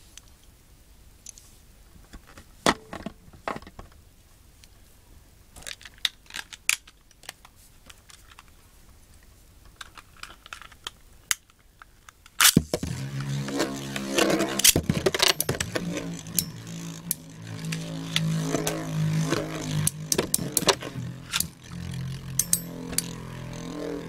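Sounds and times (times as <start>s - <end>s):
plastic spinning tops clicking: 12.4s - 24.0s.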